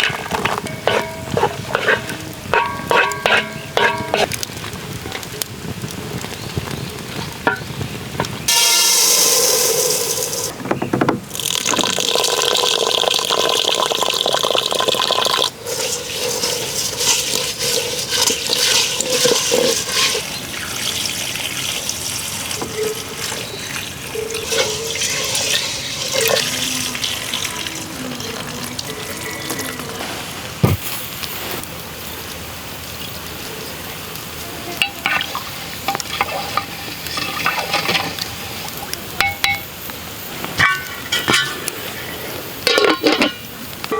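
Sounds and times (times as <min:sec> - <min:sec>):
hiss: 0:08.5 - 0:10.5, 0:15.6 - 0:20.4
water running and splashing: 0:11.3 - 0:31.4.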